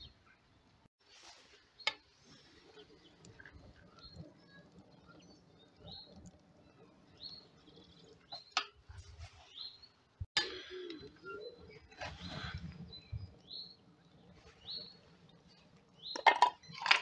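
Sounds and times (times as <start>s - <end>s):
bird chirping: 2.7s - 8.7s, 10.6s - 16.9s.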